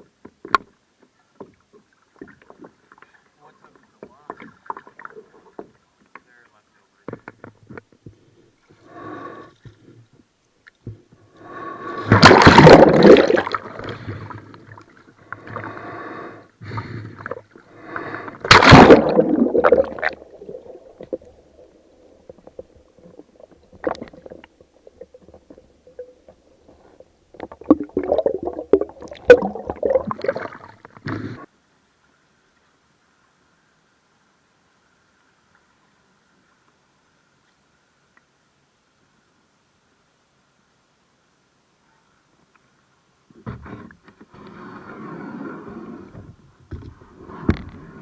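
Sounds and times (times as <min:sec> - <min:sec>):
water sloshing against hull: 0:00.4 - 0:06.3
paddle splashes: 0:12.0 - 0:14.8, 0:18.4 - 0:21.8.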